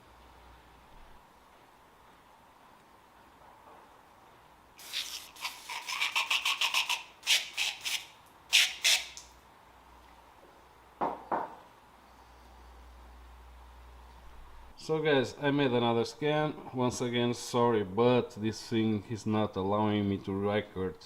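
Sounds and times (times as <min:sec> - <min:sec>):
sharp rubbing strokes: 0:04.8 - 0:09.2
short hissing bursts: 0:04.8 - 0:09.3
knocks: 0:11.0 - 0:11.6.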